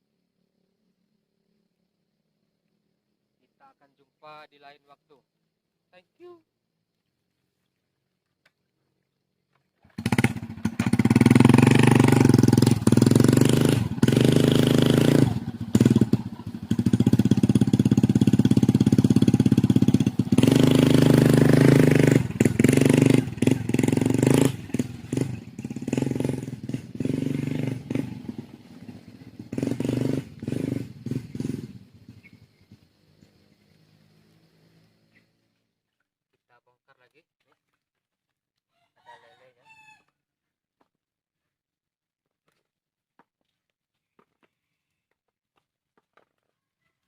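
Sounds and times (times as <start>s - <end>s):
motorcycle engine running: 9.8s - 35.3s.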